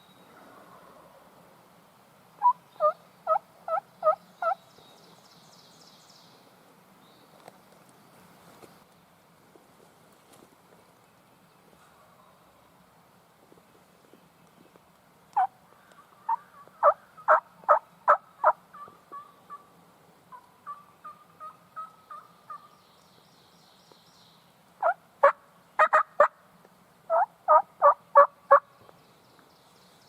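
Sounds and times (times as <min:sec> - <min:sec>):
turkey yelps: 0:02.4 - 0:04.6, 0:16.1 - 0:19.6, 0:24.8 - 0:26.3, 0:27.1 - 0:28.6.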